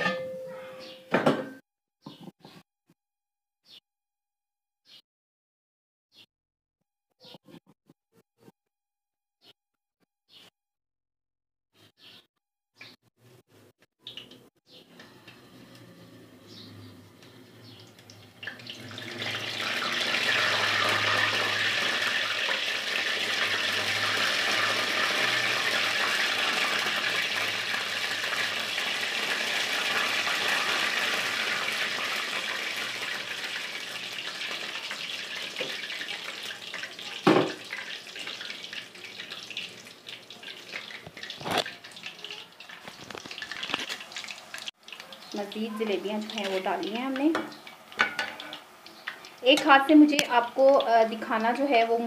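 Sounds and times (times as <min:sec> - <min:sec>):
batter sizzling in hot oil: 0:16.7 - 0:52.0.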